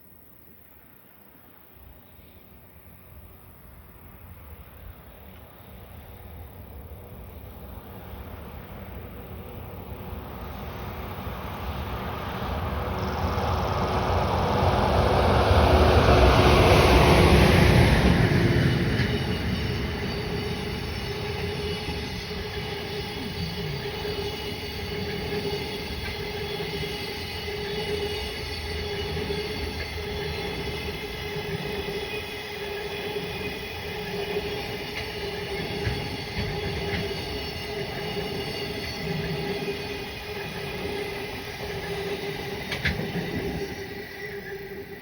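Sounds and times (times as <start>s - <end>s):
train wagons rolling on rails: 2.2s - 45.0s.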